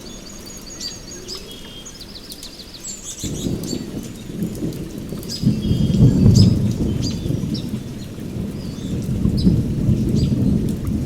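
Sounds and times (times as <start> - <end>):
birds chirping and trilling: 0.0 - 10.9
rain falling: 0.0 - 11.0
low rumble of thunder: 3.1 - 11.0.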